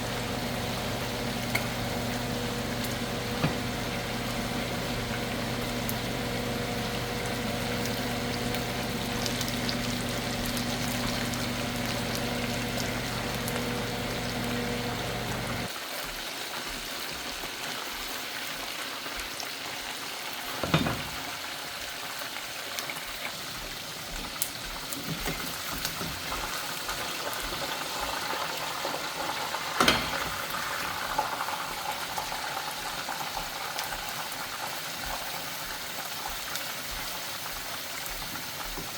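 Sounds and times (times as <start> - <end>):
kitchen appliance humming: 0.0 - 15.7, 20.5 - 21.4, 24.4 - 35.4
oil sizzling: 0.0 - 38.9.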